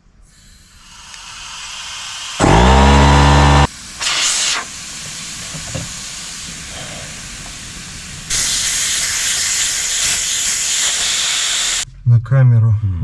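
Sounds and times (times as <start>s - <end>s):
pressurised gas hissing: 0.2s - 11.8s.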